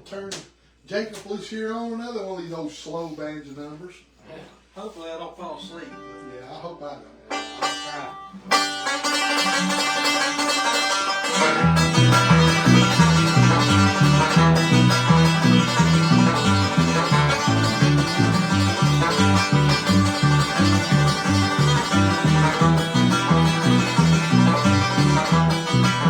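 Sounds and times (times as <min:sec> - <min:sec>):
banjo picking: 0:07.0 - 0:26.0
guitar bass notes: 0:07.2 - 0:26.0.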